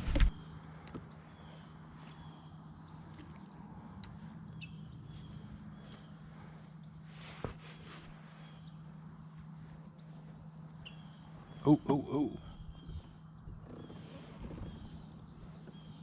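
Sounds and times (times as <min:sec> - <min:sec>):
crickets chirring: 0:00.0 - 0:16.0
bird chirp: 0:04.5 - 0:07.0, 0:10.8 - 0:16.0.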